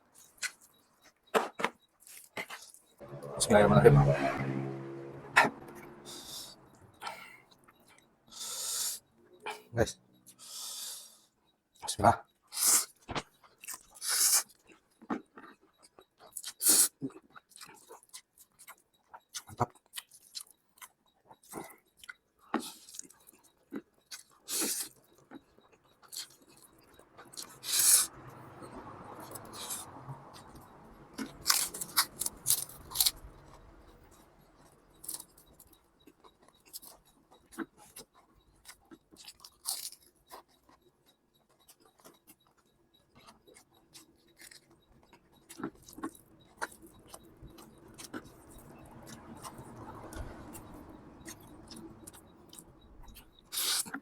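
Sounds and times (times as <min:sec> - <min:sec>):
person eating noodles: 0:24.4 - 0:25.3, 0:27.3 - 0:28.1, 0:31.2 - 0:33.5, 0:53.5 - 0:54.0.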